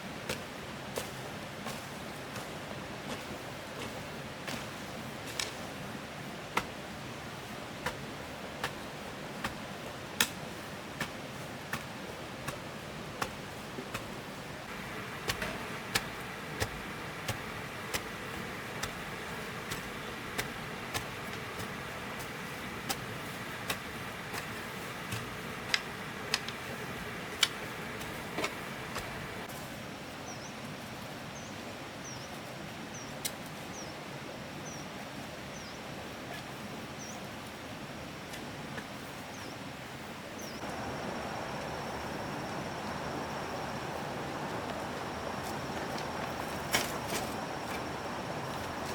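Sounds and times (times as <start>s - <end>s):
steady rustling: 13.5s - 29.5s, 40.6s - 48.9s
thin ringing hum: 40.6s - 48.9s.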